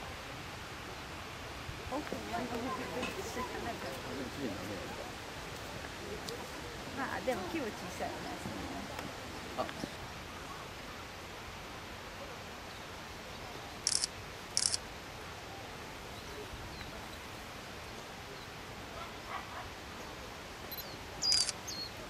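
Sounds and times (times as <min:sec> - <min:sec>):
bird giving high thin calls: 0:20.7 - 0:22.0.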